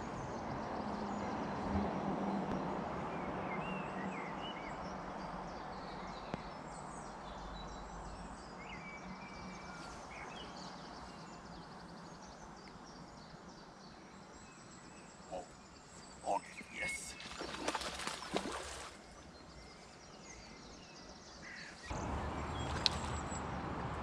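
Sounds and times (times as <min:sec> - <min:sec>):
birds chirping and singing: 0:06.9 - 0:23.2
single click: 0:22.7 - 0:23.1.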